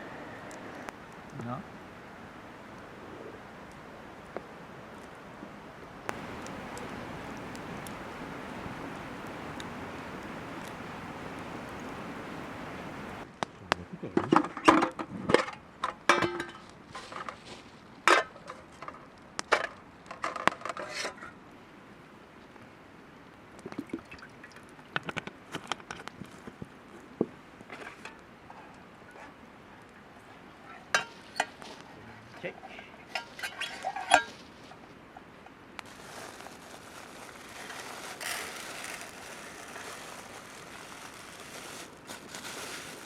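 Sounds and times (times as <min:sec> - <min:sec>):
steady hiss: 0:00.0 - 0:13.9, 0:21.0 - 0:43.0
metal cookware clinking: 0:30.7 - 0:31.6.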